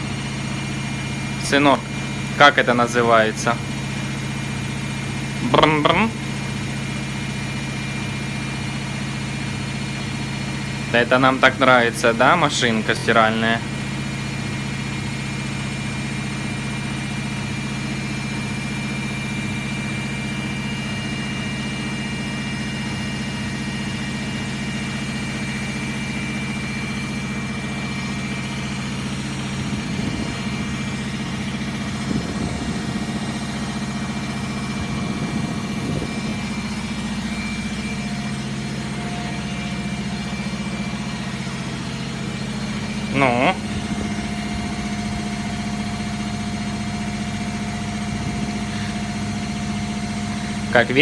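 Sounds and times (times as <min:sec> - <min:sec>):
washing machine motor hum: 0:00.0 - 0:51.0
faint high whine: 0:25.1 - 0:51.0.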